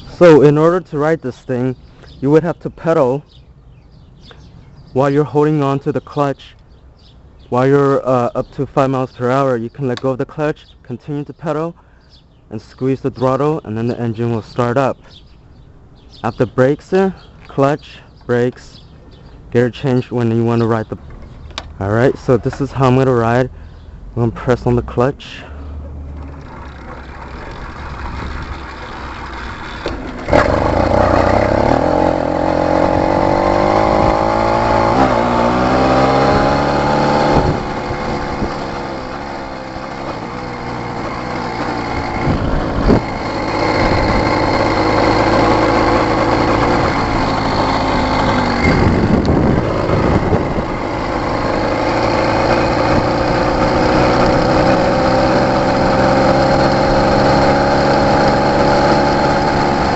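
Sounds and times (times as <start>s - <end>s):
two-stroke bicycle engine revving: 26.2s - 59.9s.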